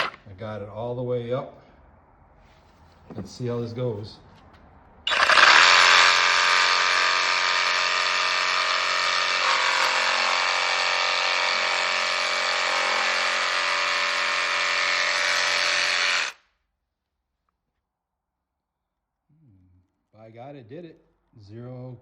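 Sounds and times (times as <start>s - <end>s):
jigsaw cutting: 5.1s - 16.4s.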